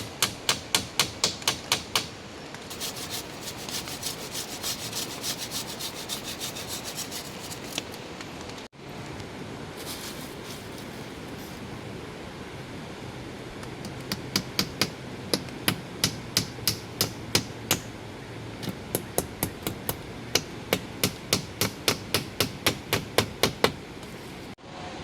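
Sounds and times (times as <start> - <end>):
hammering: 0.0 - 2.1, 18.9 - 23.8
rain hiss: 1.2 - 13.1.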